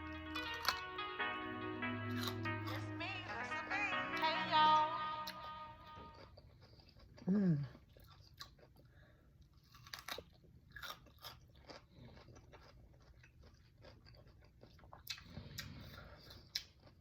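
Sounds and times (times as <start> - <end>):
cucumber crunching while chewing: 0.4 - 0.9, 2.1 - 2.8, 5.9 - 17.0.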